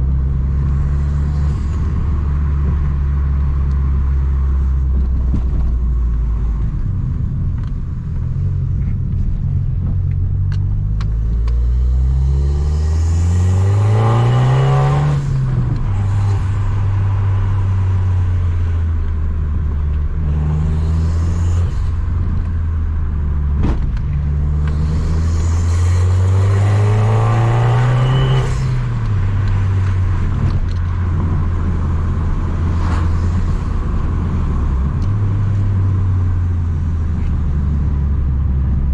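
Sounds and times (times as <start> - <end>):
car engine revving: 8.3 - 38.8.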